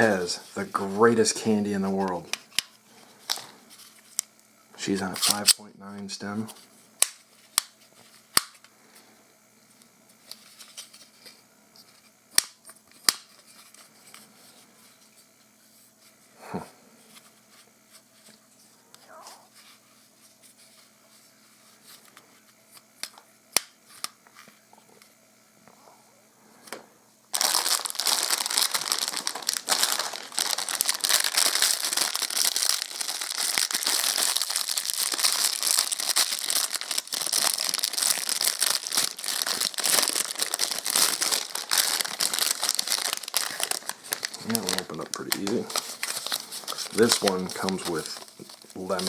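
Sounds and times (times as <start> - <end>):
plastic bag crinkling: 0.0 - 4.3, 27.3 - 49.0.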